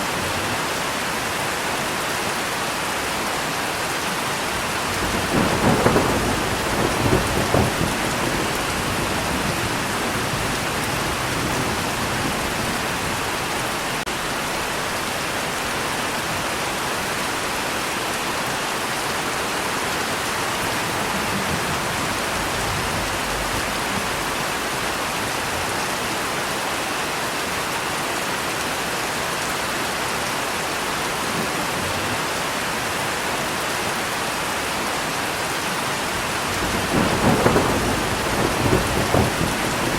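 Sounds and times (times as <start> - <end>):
steady rainfall: 0.0 - 39.9
thunder rumble: 4.6 - 15.0, 20.4 - 25.6, 36.1 - 39.9.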